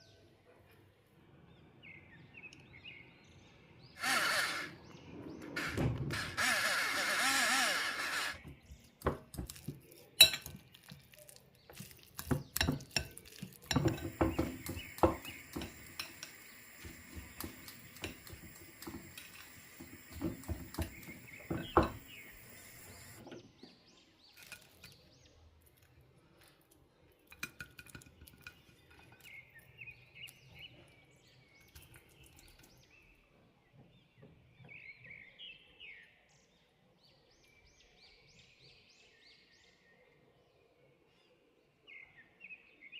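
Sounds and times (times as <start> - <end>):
dishes and cutlery clinking: 10.2 - 11.1, 11.7 - 19.2
faint chirps: 13.8 - 23.2
steady hiss: 13.8 - 23.2.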